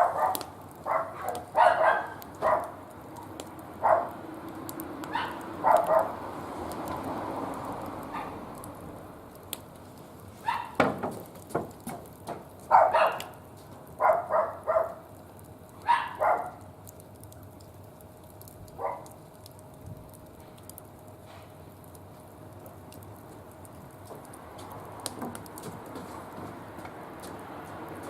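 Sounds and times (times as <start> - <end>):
dog barking: 0.0 - 2.8, 3.8 - 4.2, 5.1 - 6.2, 8.1 - 8.4, 10.4 - 10.8, 12.7 - 13.4, 14.0 - 15.0, 15.8 - 16.6, 18.8 - 19.1
fire crackling faintly: 0.0 - 28.0.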